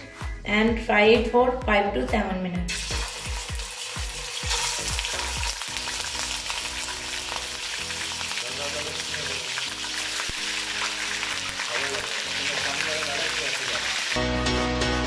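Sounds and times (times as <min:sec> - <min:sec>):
chicken sizzling in hot oil: 0:02.7 - 0:14.3.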